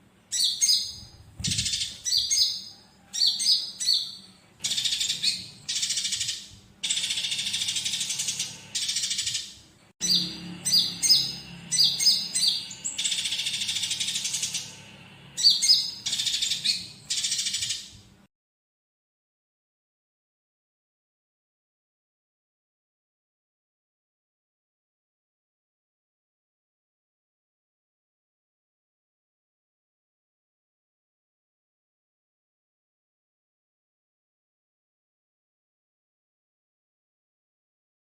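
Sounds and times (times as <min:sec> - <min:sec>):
songbird chirping: 0:00.3 - 0:18.0.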